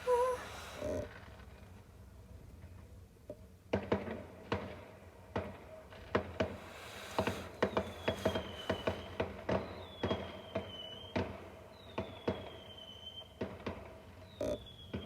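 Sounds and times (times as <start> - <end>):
fireworks popping and crackling: 0.0 - 3.0, 3.6 - 15.0
faint high falling whistle: 7.7 - 13.3.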